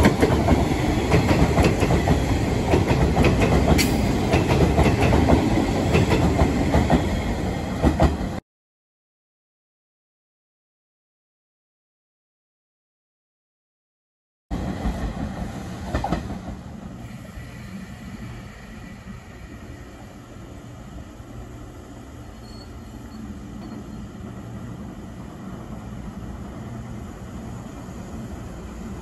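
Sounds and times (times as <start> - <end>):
electric train rumbling: 0.0 - 8.4, 14.5 - 29.0.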